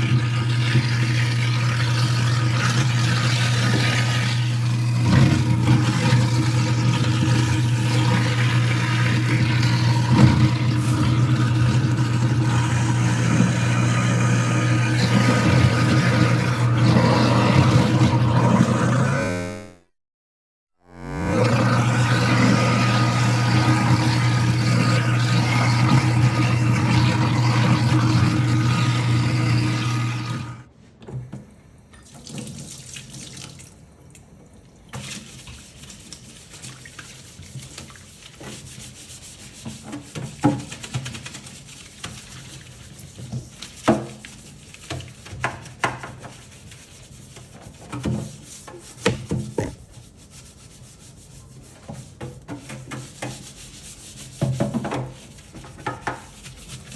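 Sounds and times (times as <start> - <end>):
water flowing into sink: 0.0 - 19.5, 21.2 - 30.7, 31.3 - 38.2
garbage disposal motor hum: 0.0 - 19.9, 20.8 - 32.0.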